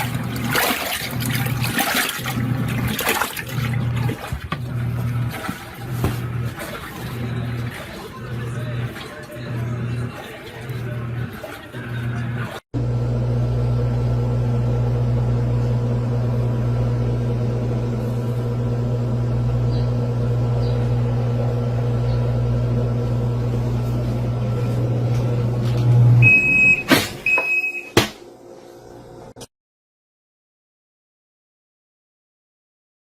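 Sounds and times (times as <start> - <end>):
washing machine motor humming: 0.0 - 29.4
short electronic beeps: 26.2 - 28.0.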